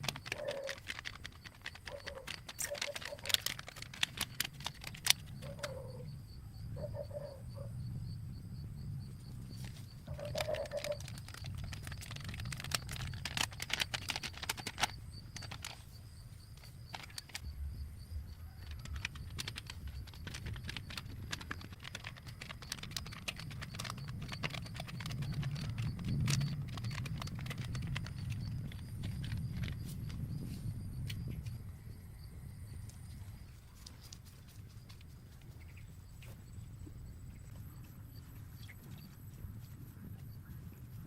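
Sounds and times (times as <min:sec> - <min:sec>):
steady low rumble: 0:04.5 - 0:14.0, 0:14.9 - 0:33.8.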